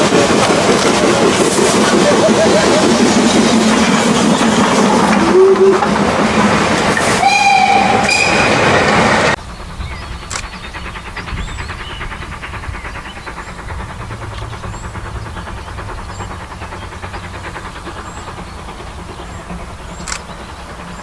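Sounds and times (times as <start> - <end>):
steam train running: 0.0 - 21.0
train whistle: 5.2 - 5.9, 7.2 - 8.6.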